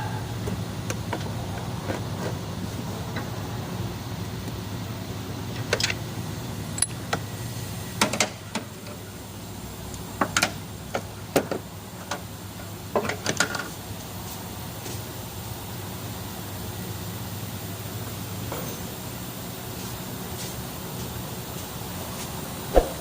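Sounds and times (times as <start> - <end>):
hand tools clinking on metal parts: 6.8 - 7.0
low hum: 22.7 - 23.0.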